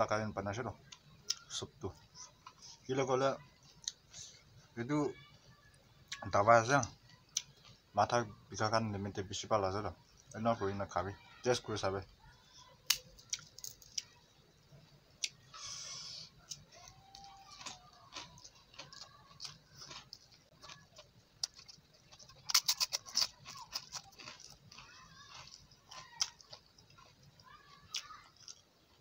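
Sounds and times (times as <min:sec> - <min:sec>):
person chewing: 0:15.2 - 0:29.0.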